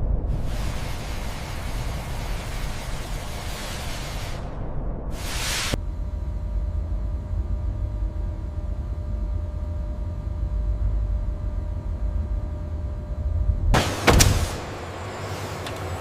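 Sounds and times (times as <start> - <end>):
faint steady hum: 0.0 - 15.2
low machinery rumble: 0.0 - 16.0
short burst of hiss: 5.2 - 5.8.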